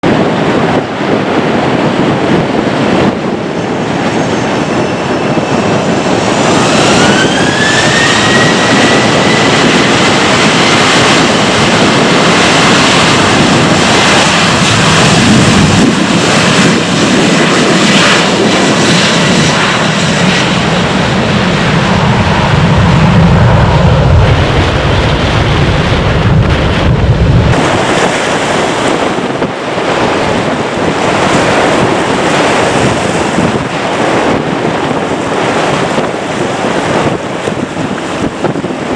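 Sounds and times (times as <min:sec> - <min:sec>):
deep rumble: 0:00.0 - 0:38.9
jet engine rush: 0:00.0 - 0:38.9
jet engine whine: 0:00.0 - 0:38.9.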